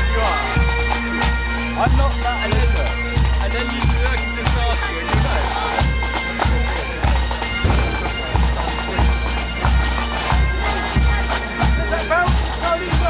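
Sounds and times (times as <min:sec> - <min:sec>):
bagpipes playing over drones: 0:00.0 - 0:13.0
bass drum beating: 0:07.5 - 0:10.7.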